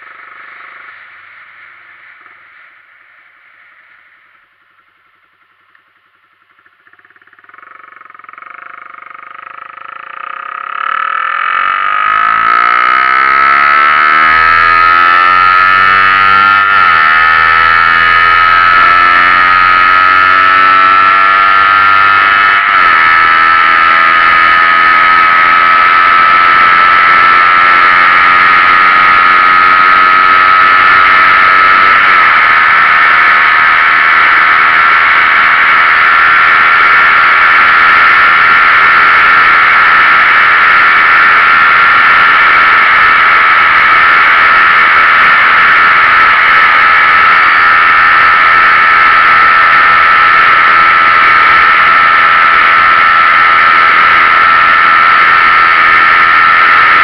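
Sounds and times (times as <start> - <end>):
gear changes: 0.0 - 57.0
motorcycle engine accelerating: 0.0 - 57.0.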